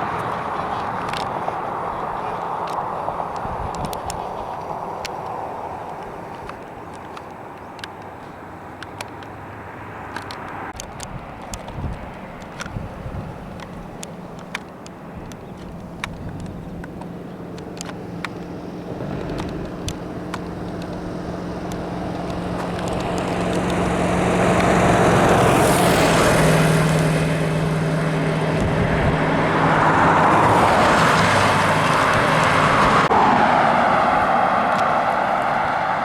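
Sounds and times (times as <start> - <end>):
heavy vehicle engine drone: 0.0 - 6.7, 12.0 - 36.0
tyre noise: 10.1 - 27.3.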